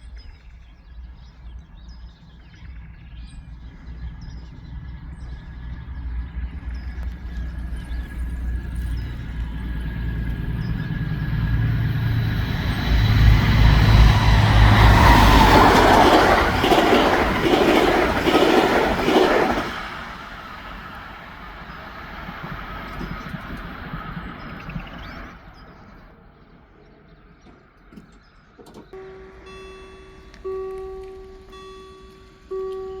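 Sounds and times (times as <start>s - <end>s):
diesel engine rumble: 1.2s - 19.0s
train wheels clattering: 6.5s - 24.8s.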